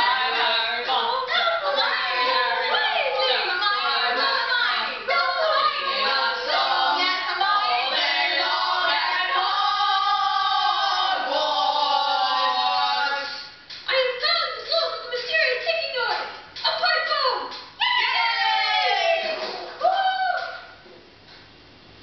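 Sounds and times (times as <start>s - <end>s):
choir singing: 0.0s - 13.5s.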